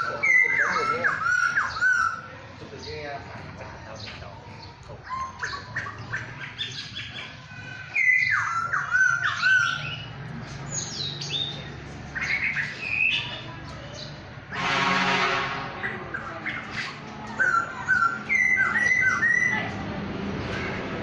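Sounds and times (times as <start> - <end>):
harsh raspy bird call: 0.0 - 2.4, 5.0 - 13.3, 14.5 - 19.8
songbirds chirping and whistling: 0.0 - 20.7.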